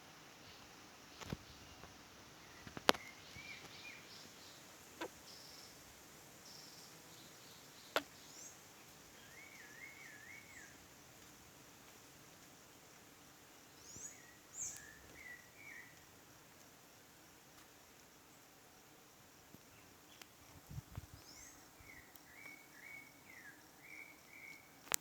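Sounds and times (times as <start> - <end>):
birds chirping: 0.5 - 5.8, 6.5 - 10.8, 13.7 - 16.0.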